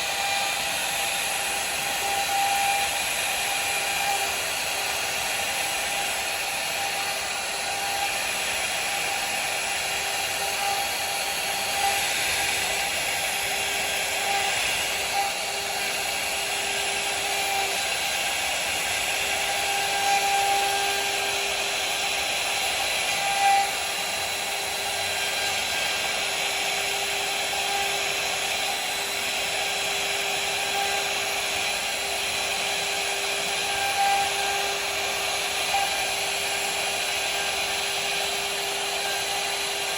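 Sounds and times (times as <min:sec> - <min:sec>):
router spindle cutting wood: 0:00.0 - 0:39.9.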